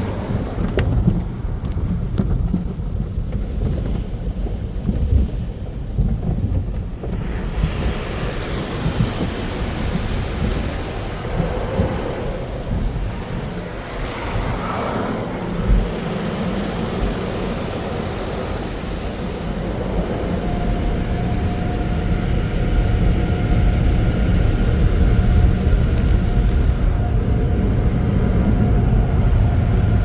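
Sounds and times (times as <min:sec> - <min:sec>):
low rumbling thuds: 0:00.0 - 0:30.0
water spraying on car body: 0:06.7 - 0:29.2.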